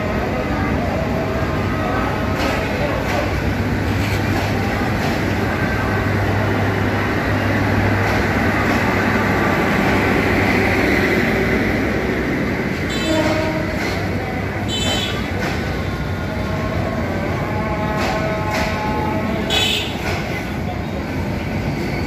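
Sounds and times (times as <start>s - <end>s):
train rumbling slowly past: 0.0s - 22.0s.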